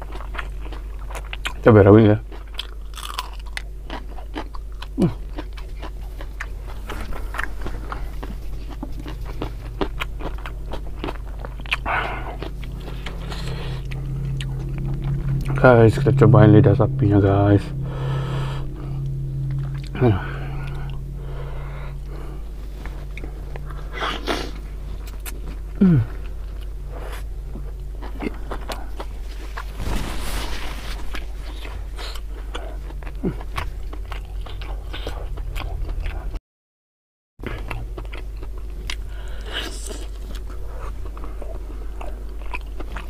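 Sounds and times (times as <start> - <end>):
chewing with wet mouth clicks: 0.0 - 1.7, 2.3 - 15.6, 23.1 - 29.7, 31.5 - 36.4, 37.4 - 43.0
steady low hum: 0.0 - 36.4, 37.4 - 43.0.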